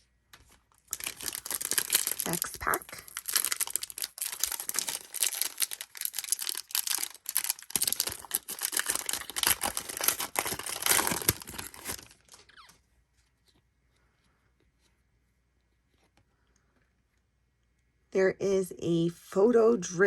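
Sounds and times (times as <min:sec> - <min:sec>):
wrapper tearing and crinkling: 0:00.8 - 0:12.5.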